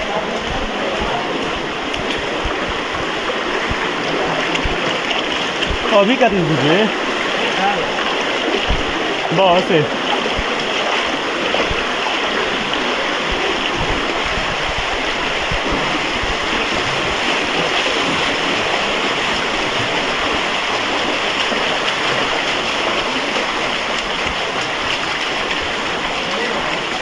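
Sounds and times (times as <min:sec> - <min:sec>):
faint low thumps: 0:00.0 - 0:07.0, 0:08.6 - 0:10.7
flowing water rushing: 0:00.0 - 0:27.0.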